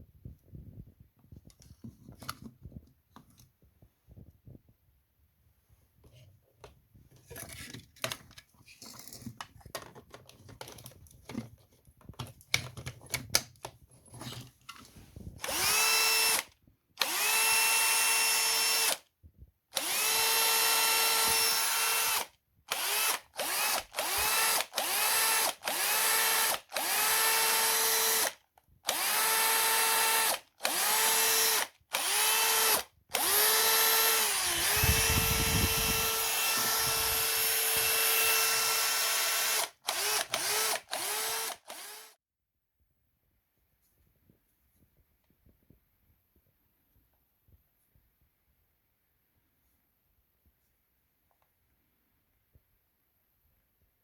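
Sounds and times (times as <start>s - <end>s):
cordless drill whining: 15.2s - 19.0s, 19.8s - 42.2s.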